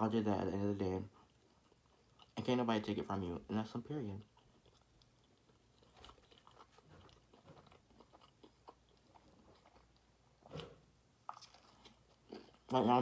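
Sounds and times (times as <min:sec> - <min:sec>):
person chewing: 0:01.1 - 0:02.4, 0:04.1 - 0:13.0.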